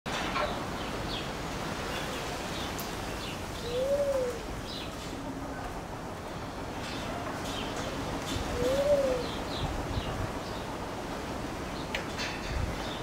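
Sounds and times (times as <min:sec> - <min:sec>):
low bird call: 0:03.6 - 0:04.4, 0:08.5 - 0:09.4.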